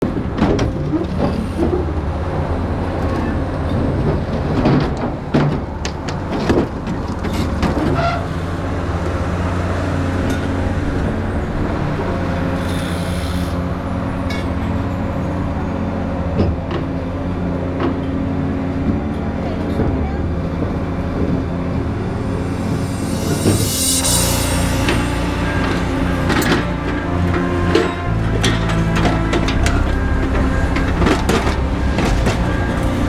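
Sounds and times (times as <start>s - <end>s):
excavator diesel engine running: 0.0s - 33.0s
metal knocks and clanks: 2.9s - 8.2s, 16.4s - 33.0s
brief hiss: 22.4s - 26.3s.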